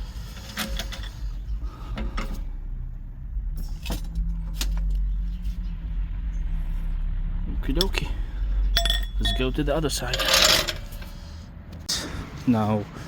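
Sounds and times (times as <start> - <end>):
steady low rumble: 0.0 - 13.0
metallic clinks of car jack: 8.7 - 11.1.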